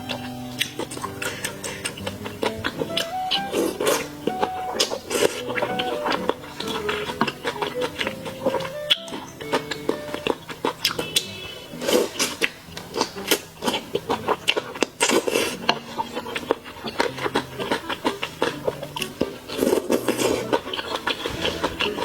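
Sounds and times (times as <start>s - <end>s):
utensils clicking against dish: 0.0s - 22.0s
wet chewing and smacking: 0.0s - 22.0s.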